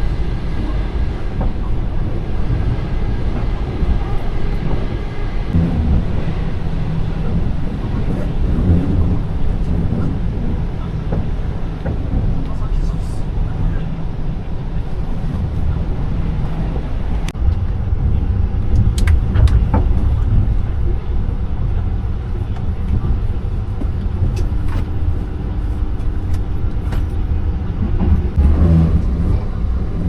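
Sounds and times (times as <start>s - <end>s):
train rumble inside carriage: 0.0s - 30.0s.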